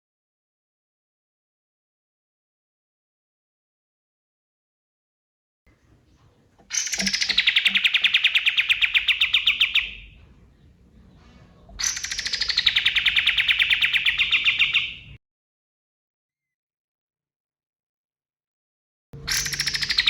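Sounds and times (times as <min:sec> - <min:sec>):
songbird rapid trills: 0:05.7 - 0:15.2, 0:19.2 - 0:20.0.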